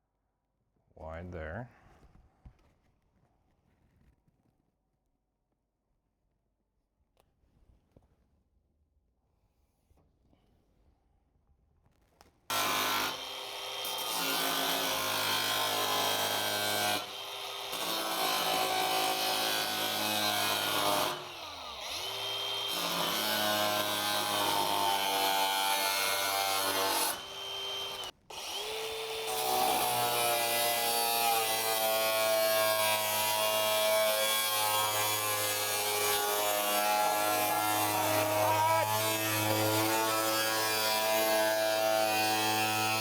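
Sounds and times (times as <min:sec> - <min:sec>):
power tool cutting sheet metal: 0:12.5 - 0:43.0.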